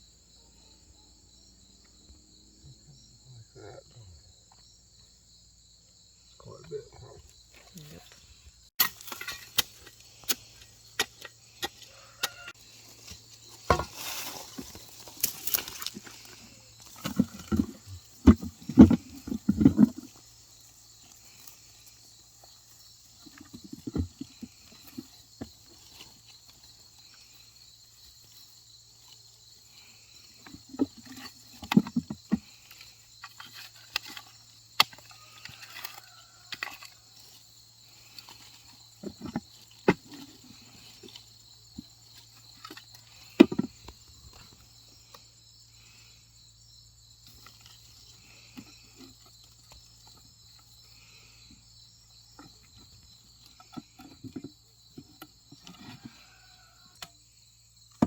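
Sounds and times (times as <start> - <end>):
insects chirring: 0.0 - 58.0
knocking and scraping: 8.8 - 20.6, 22.4 - 27.2, 30.4 - 37.0, 37.9 - 44.6, 52.3 - 56.6.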